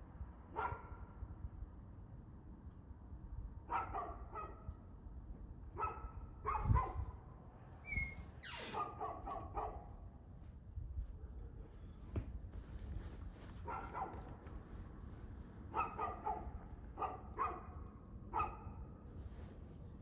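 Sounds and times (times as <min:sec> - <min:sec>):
dog barking: 0:00.6 - 0:01.0, 0:03.7 - 0:04.6, 0:05.8 - 0:07.0, 0:08.8 - 0:09.9, 0:13.6 - 0:14.3, 0:15.7 - 0:18.8.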